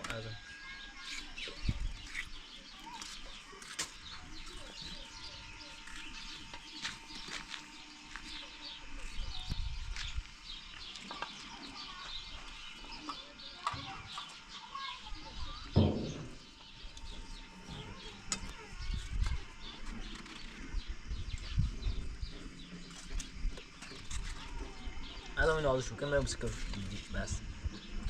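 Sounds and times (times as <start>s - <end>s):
small birds chirping: 0.0s - 28.0s
dull low thud: 15.7s - 16.5s.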